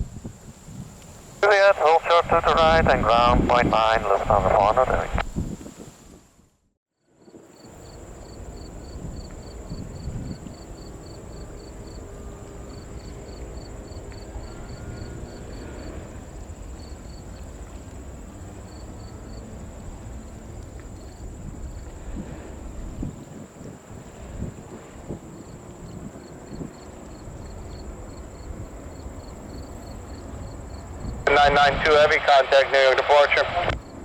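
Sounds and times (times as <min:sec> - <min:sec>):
wind noise: 0:00.0 - 0:06.5, 0:08.0 - 0:34.0
insects chirping in pulses: 0:00.1 - 0:06.1, 0:07.5 - 0:34.0
steady high-pitched buzz: 0:07.6 - 0:33.7.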